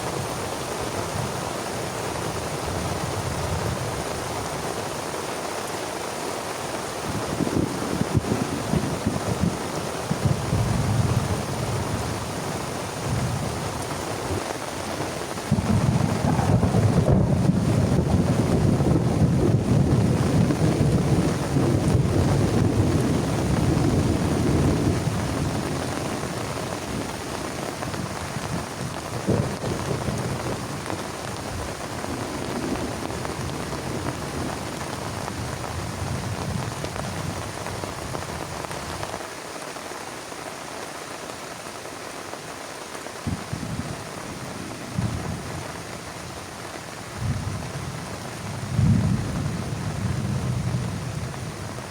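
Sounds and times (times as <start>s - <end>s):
heavy rain falling: 0.0s - 51.9s
rolling thunder: 7.1s - 14.5s, 15.5s - 38.3s, 43.3s - 45.9s, 47.1s - 51.9s.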